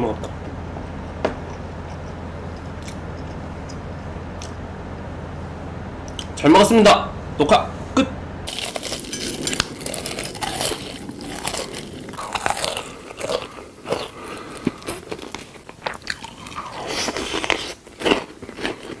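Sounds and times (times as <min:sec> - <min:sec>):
person chewing crunchy food: 0:01.4 - 0:04.6, 0:08.5 - 0:19.0.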